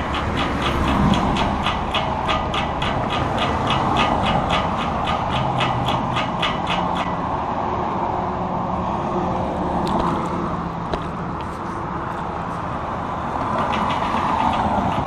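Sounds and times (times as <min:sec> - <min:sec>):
rapid regular ticking: 0:00.0 - 0:07.4, 0:13.3 - 0:15.0
road and wind noise: 0:00.0 - 0:15.0.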